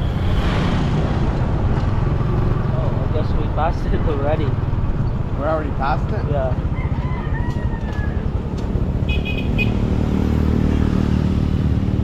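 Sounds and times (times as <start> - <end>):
horn toots: 9.0 - 10.0.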